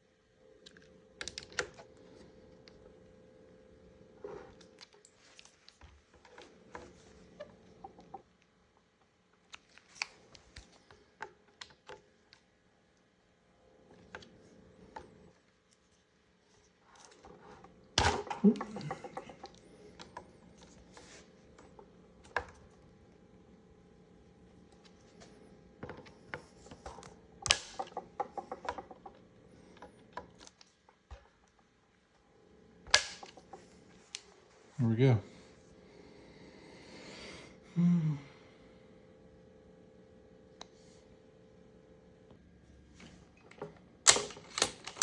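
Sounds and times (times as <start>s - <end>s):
tools and rifle parts clicking: 44.1s - 45.0s.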